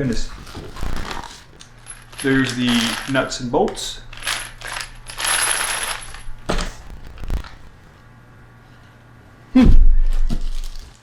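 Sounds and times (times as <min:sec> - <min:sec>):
packaging rustling: 0:00.2 - 0:08.1.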